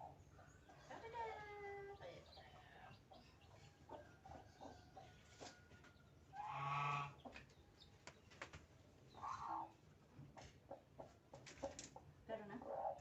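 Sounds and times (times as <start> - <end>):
farm animal calling: 6.3 - 7.3.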